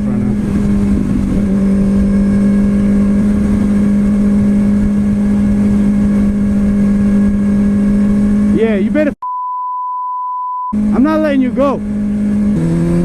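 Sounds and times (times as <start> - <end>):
wind rushing over microphone: 0.0 - 8.6
motorcycle engine running: 0.0 - 9.1, 10.8 - 13.0.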